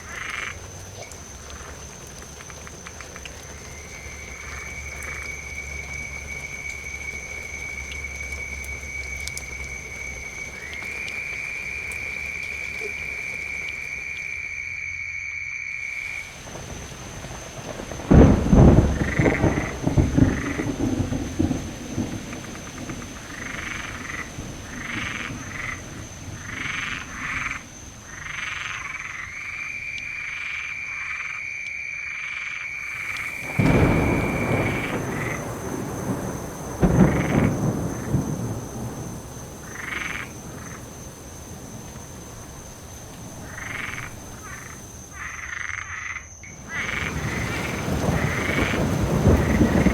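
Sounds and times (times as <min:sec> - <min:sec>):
thunder cracking and rumbling: 0:00.0 - 0:14.4, 0:16.4 - 0:27.6, 0:32.8 - 0:45.6, 0:46.4 - 0:49.9
steady rain: 0:00.0 - 0:14.9, 0:15.8 - 0:31.2, 0:32.6 - 0:45.7, 0:46.4 - 0:49.9
frogs croaking: 0:00.0 - 0:49.9.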